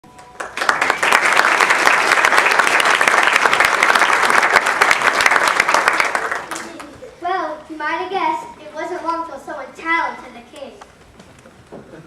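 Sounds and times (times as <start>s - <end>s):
audience applauding: 0.1s - 6.9s.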